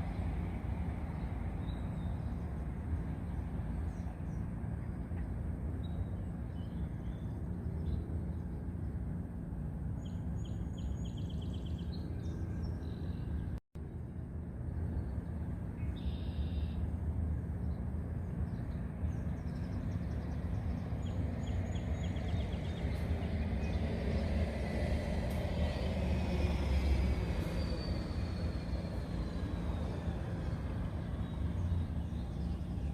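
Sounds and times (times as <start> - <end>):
traffic rumble: 0.0 - 32.9
vehicle passing: 20.8 - 32.9.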